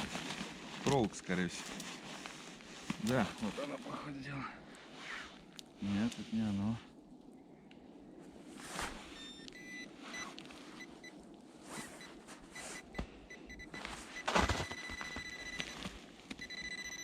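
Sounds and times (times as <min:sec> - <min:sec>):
digging in loose soil and snow: 0:00.0 - 0:06.8, 0:08.2 - 0:16.6
metal detector beeping: 0:09.2 - 0:11.1, 0:11.8 - 0:17.0.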